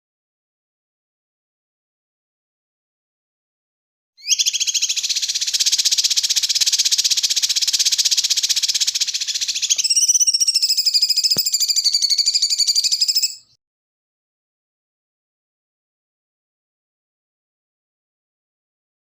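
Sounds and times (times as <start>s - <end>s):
high buzzing bird trill: 4.2s - 13.6s.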